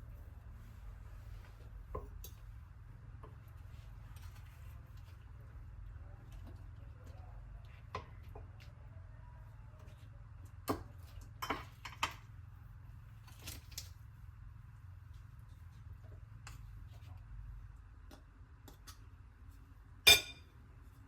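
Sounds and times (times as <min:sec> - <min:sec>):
low steady hum: 0:00.0 - 0:21.0
utensils tapping on dishes: 0:20.1 - 0:20.4.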